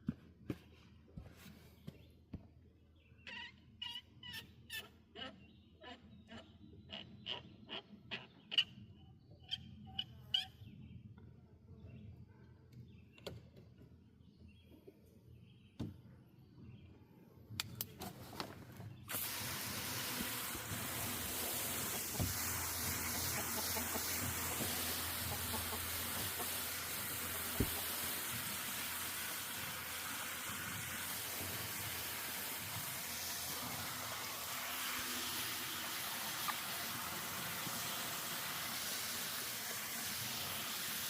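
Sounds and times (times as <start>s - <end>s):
garden hose spraying water: 18.2s - 41.0s
faint chicken clucks: 23.1s - 26.6s.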